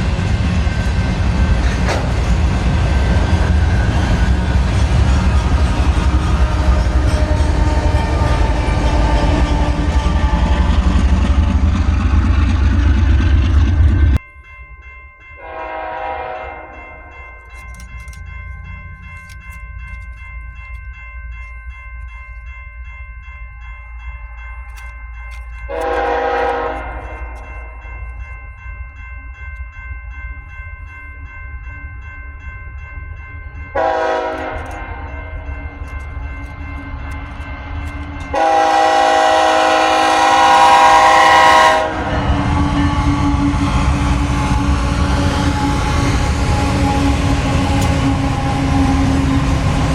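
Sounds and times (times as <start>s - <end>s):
diesel locomotive rumbling: 0.0s - 49.9s
passing train rumble: 0.0s - 49.9s
locomotive air horn blasts: 15.4s - 17.2s, 25.7s - 27.5s, 33.7s - 35.4s, 38.3s - 49.8s.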